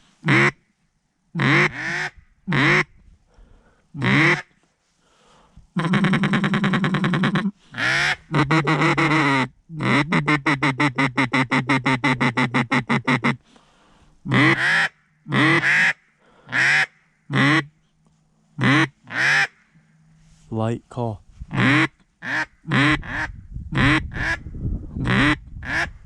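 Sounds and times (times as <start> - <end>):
duck call quacks: 0.2 - 0.6, 1.4 - 2.9, 4.0 - 4.5, 5.8 - 13.4, 14.3 - 17.7, 18.6 - 19.6, 21.5 - 24.4, 25.0 - 25.9.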